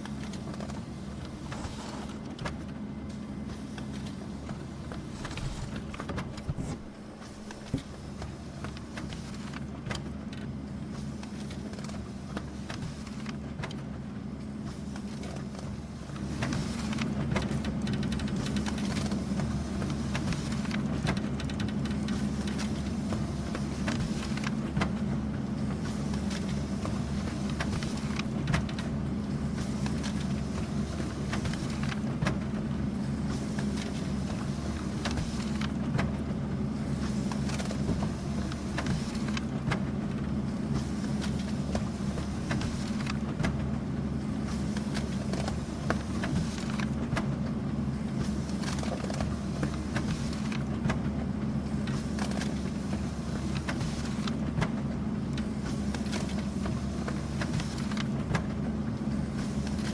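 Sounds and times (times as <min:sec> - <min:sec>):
printer humming: 0:00.9 - 0:09.5
paper feed clicks and taps: 0:16.4 - 0:19.2, 0:53.4 - 0:58.6.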